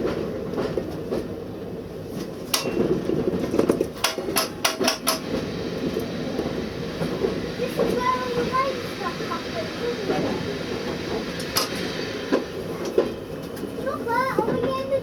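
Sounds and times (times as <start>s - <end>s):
locomotive cab rumble: 2.7s - 15.0s
sharp clicks and knocks: 3.6s - 5.2s.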